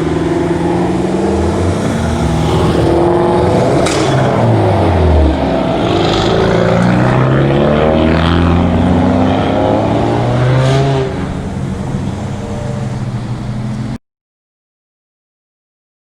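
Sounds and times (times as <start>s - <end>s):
car engines revving: 0.0s - 14.0s.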